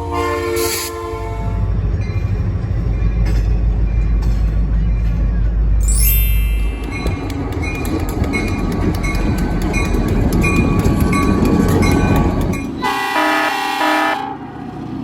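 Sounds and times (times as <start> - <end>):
multi-note train horn: 0.0 - 1.7, 12.8 - 14.6
diesel train rumbling past: 0.0 - 15.0
wheels clicking over rail joints: 6.6 - 13.0.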